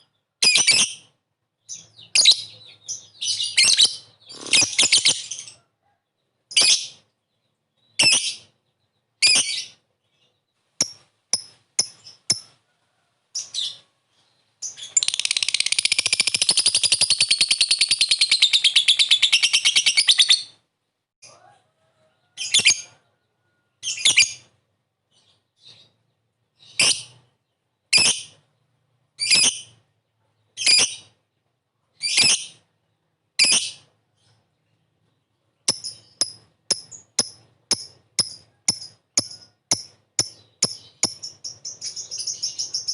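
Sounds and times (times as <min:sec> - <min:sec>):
bird high chirps: 0:00.0 - 0:05.6, 0:14.4 - 0:20.6, 0:35.6 - 0:42.9
bird rapid chattering trill: 0:03.6 - 0:05.3, 0:14.9 - 0:20.3, 0:35.7 - 0:42.9.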